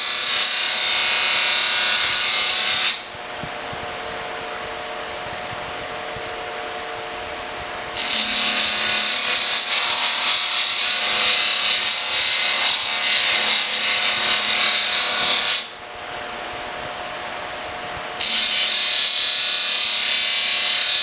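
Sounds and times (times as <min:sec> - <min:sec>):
abrasive tool rasping on metal: 0:08.0 - 0:15.2.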